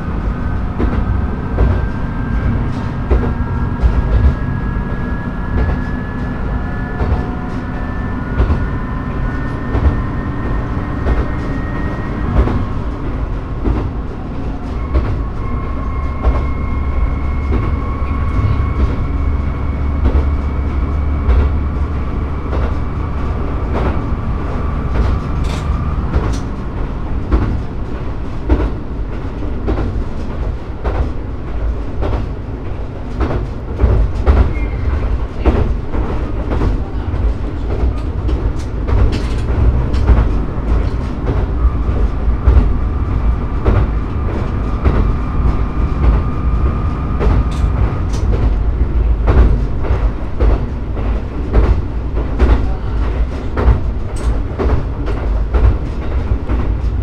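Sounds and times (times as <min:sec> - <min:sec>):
steady whine: 0:00.0 - 0:29.0, 0:36.4 - 0:51.4
railcar engine rumble: 0:00.0 - 0:57.0
wheels clacking over rail joints: 0:00.0 - 0:57.0.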